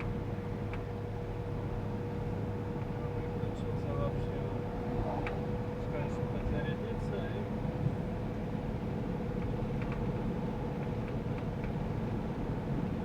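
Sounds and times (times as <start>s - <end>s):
engine and road noise: 0.0s - 13.0s.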